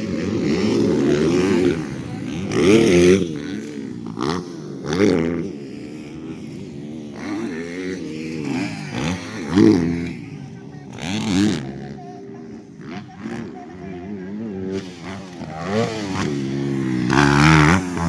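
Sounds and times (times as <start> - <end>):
dirt bikes revving: 0.0 - 18.0.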